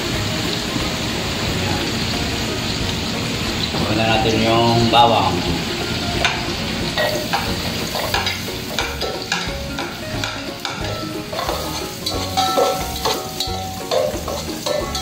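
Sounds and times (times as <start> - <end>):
garlic sizzling in hot oil: 0.0 - 15.0
metal spoon scraping a pot: 10.6 - 15.0.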